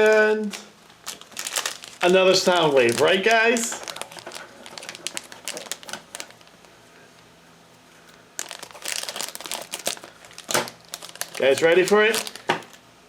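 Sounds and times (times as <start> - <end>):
plastic wrapper crinkling: 0.0 - 7.3, 7.9 - 12.9.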